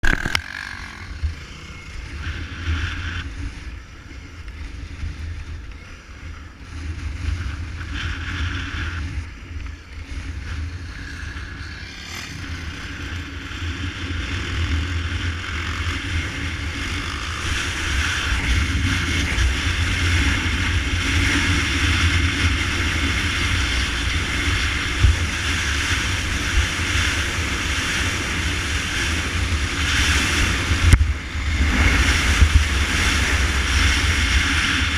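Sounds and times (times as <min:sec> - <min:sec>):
motorcycle engine: 0:00.0 - 0:34.9
wind rumble on microphone: 0:00.0 - 0:34.9.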